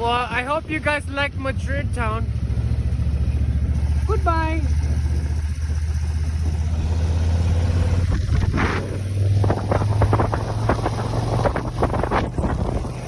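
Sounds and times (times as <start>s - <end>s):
motorcycle engine running: 0.0s - 13.0s
wind buffeting microphone: 5.5s - 13.0s.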